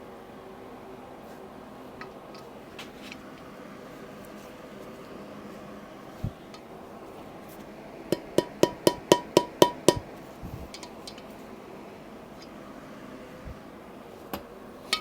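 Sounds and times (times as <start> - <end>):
metal-on-metal strikes: 8.2 - 10.1.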